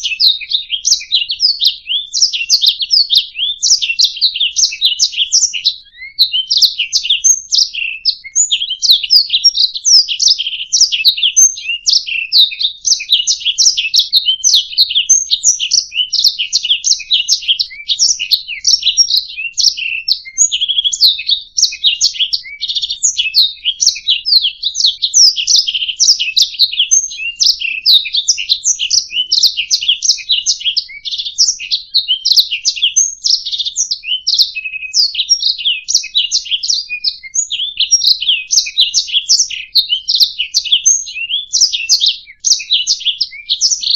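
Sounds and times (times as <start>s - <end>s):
canary singing: 0.0s - 43.9s.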